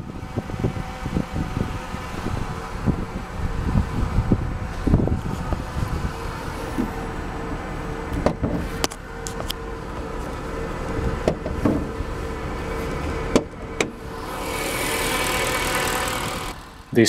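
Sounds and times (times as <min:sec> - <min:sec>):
car engine idling: 0:00.0 - 0:17.0
sharp clicks and knocks: 0:13.3 - 0:14.0.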